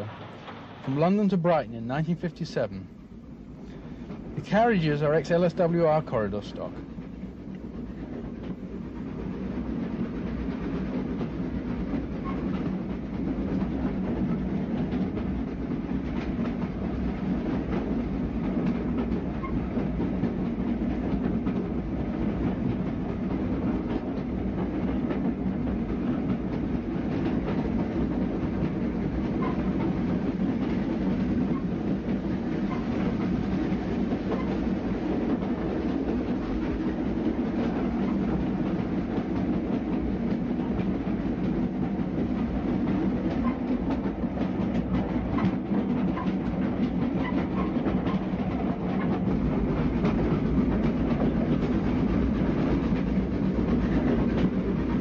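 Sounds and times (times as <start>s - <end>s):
train carriages rumbling: 0.0s - 55.0s
wheels clicking over rail joints: 24.9s - 33.4s.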